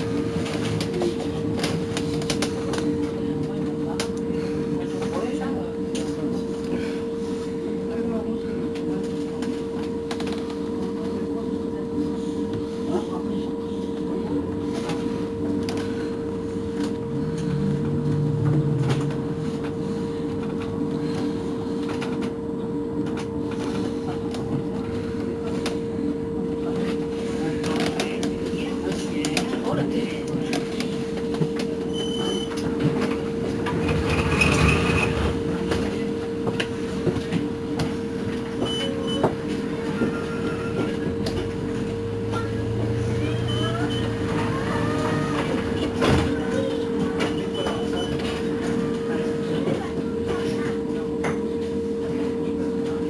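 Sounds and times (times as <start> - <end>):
electric bus motor hum and whine: 0.0 - 53.0
short high beeps: 43.5 - 44.2.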